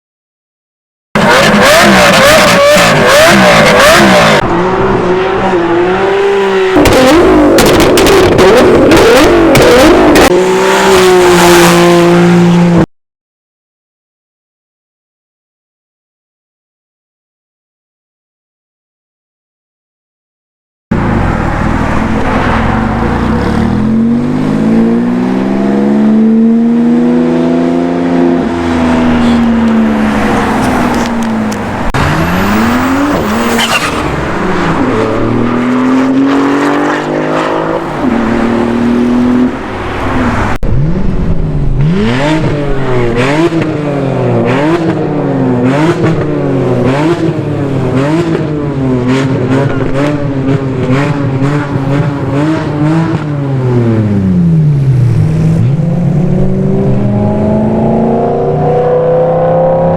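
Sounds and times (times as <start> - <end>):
car engines revving: 1.2 - 12.9, 20.9 - 59.9.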